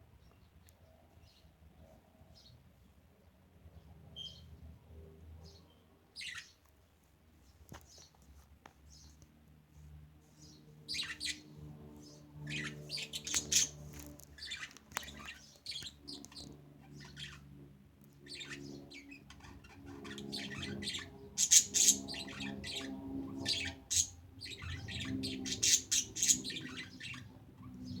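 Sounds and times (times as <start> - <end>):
budgerigars chirping: 6.2 - 6.5, 10.9 - 11.4, 12.5 - 13.8, 14.4 - 17.4, 18.3 - 27.3.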